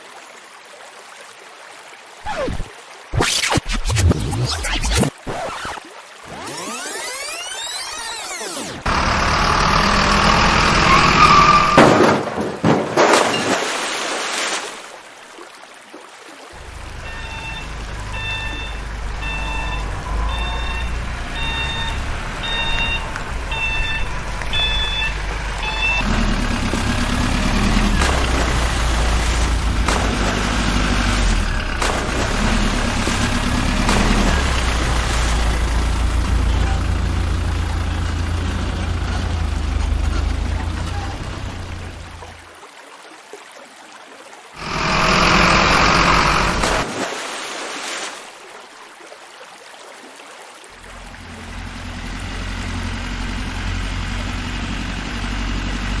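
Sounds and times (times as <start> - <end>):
diesel engine droning: 8.7 - 12.1, 16.6 - 42.4, 44.6 - 46.9, 50.8 - 56.0
reversing alarm beeping: 16.9 - 26.1
loud burst of noise: 44.6 - 47.0.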